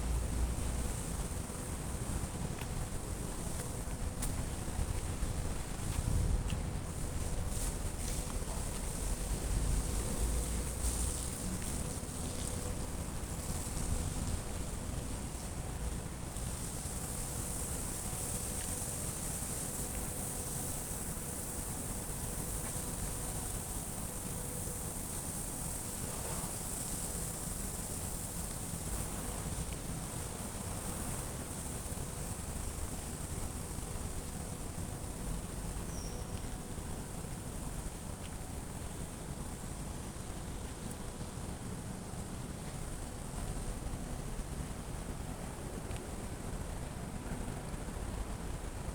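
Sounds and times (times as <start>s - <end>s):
wind rumbling on microphone: 0.0s - 20.2s.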